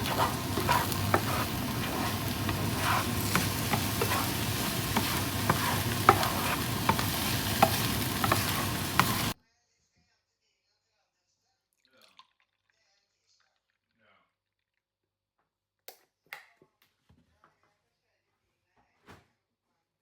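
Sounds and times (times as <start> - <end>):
food sizzling in a frying pan: 0.0 - 9.4
utensil tapping against pan: 0.0 - 9.4.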